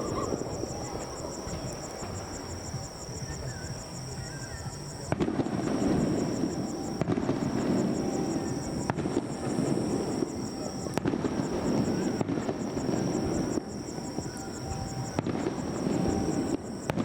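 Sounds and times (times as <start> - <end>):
fireworks shells bursting: 5.1 - 17.0.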